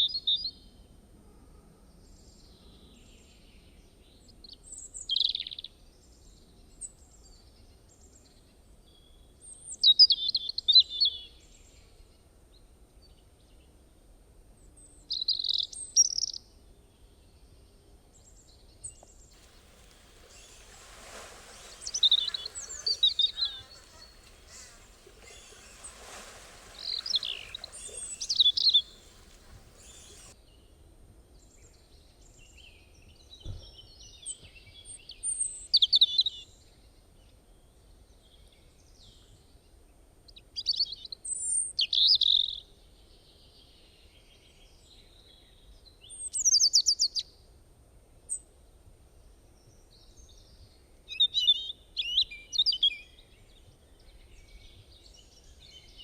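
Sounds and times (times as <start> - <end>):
songbird chirping and trilling: 19.4 - 30.4.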